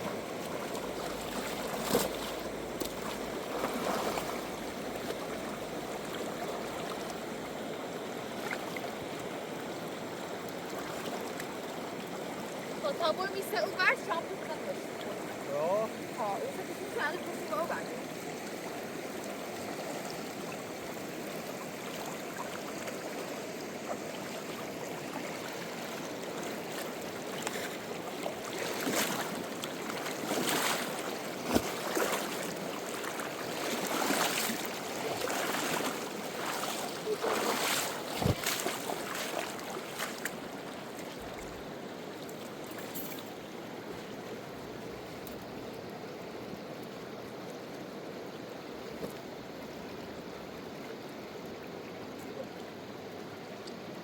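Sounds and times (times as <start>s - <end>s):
water splashing: 0.0s - 7.3s, 10.6s - 12.2s, 21.6s - 41.6s
river water flowing: 0.0s - 54.0s.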